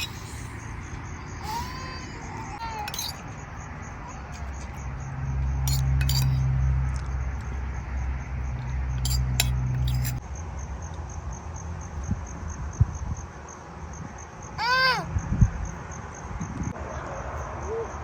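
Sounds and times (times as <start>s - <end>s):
sharp clinks: 0.0s - 0.7s, 2.6s - 3.4s, 5.6s - 6.5s, 8.9s - 10.2s
insects chirping: 0.0s - 18.0s.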